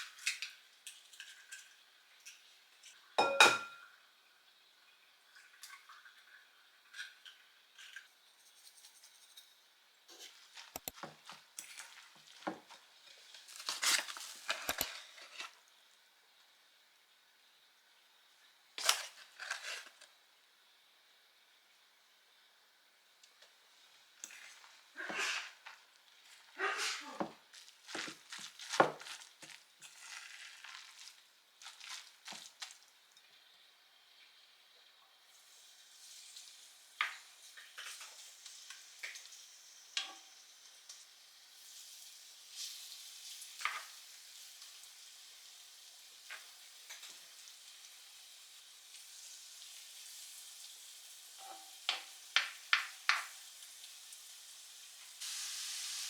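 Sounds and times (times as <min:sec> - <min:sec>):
dishes and cutlery clinking: 0:00.3 - 0:03.9.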